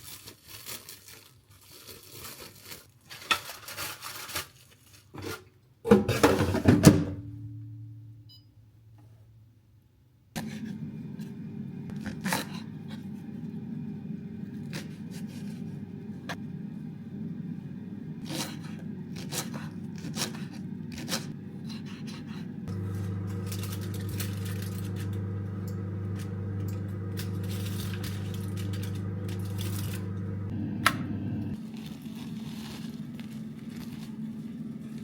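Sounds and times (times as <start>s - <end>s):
low motor hum: 10.4s - 19.2s, 22.2s - 32.3s.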